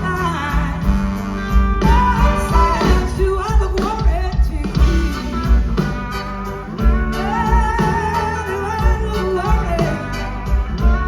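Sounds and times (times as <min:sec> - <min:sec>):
blues-rock band playing: 0:00.0 - 0:11.0
person singing: 0:01.8 - 0:06.0, 0:07.0 - 0:11.0.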